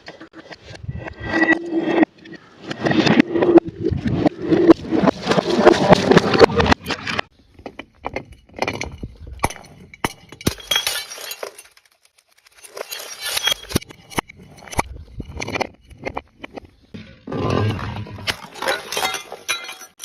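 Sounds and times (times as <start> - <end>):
glass bottles smashing: 9.4 - 13.8, 18.2 - 20.0.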